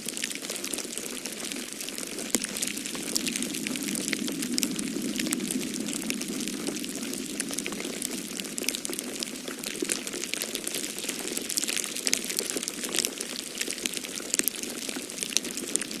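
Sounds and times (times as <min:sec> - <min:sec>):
wood fire crackling: 0:00.0 - 0:16.0
storm wind rushing: 0:02.4 - 0:09.9.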